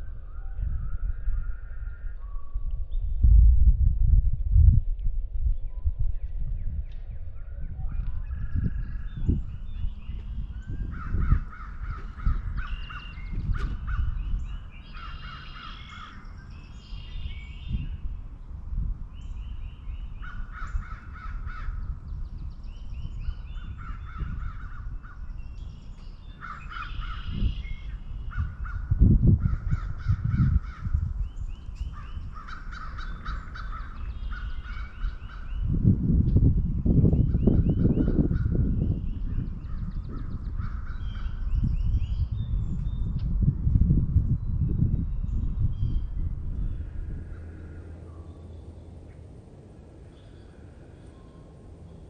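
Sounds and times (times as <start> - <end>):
low rumble: 0.0 - 14.9, 34.5 - 52.0
crows cawing: 10.8 - 14.2, 14.8 - 16.3, 20.2 - 21.8, 26.4 - 27.5, 28.3 - 31.0, 31.9 - 35.5.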